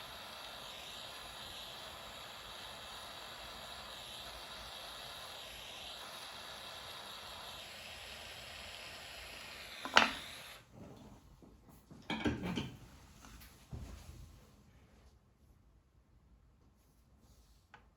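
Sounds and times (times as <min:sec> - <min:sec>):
torch flame hissing: 0:00.0 - 0:10.8
sharp pop: 0:09.8 - 0:10.3.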